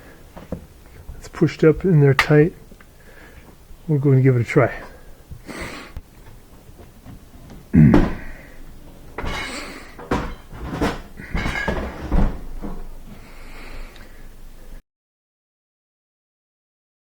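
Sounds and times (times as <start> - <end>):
knocks and clunks of panels: 6.2 - 13.2.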